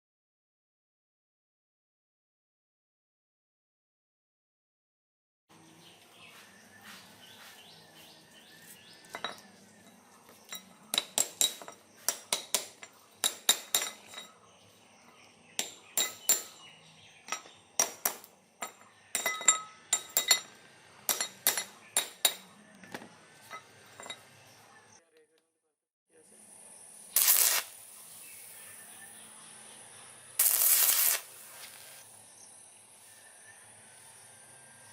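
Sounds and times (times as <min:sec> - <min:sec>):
metal clinks and taps: 0:09.0 - 0:14.4, 0:15.6 - 0:16.6, 0:17.3 - 0:24.3.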